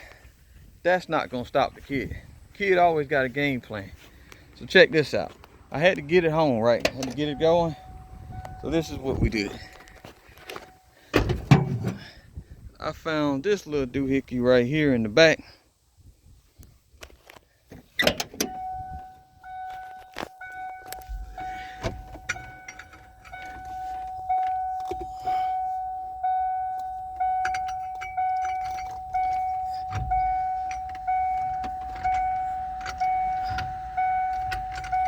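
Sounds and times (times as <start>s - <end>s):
truck warning chime dinging: 5.7s - 11.8s, 18.0s - 35.0s
handling clicks and knocks: 6.7s - 12.0s, 17.0s - 25.3s, 26.1s - 35.0s.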